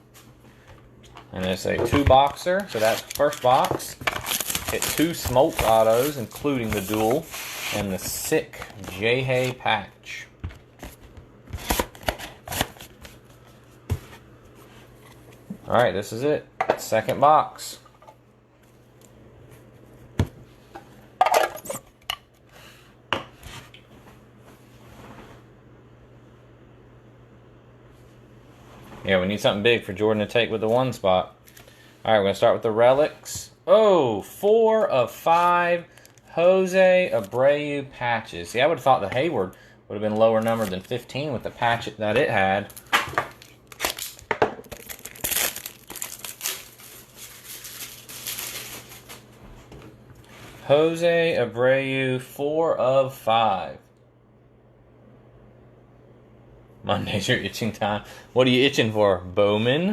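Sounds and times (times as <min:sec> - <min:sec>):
plastic packaging crinkling: 0:01.3 - 0:09.2, 0:35.9 - 0:36.3, 0:42.5 - 0:49.3
trading cards rustling and clicking: 0:01.3 - 0:09.6.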